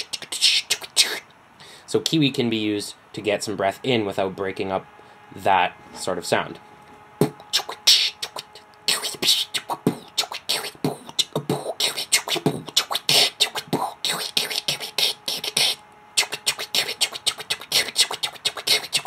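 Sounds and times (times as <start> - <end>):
person beatboxing whispered sounds: 0.0 - 1.3, 7.2 - 19.0.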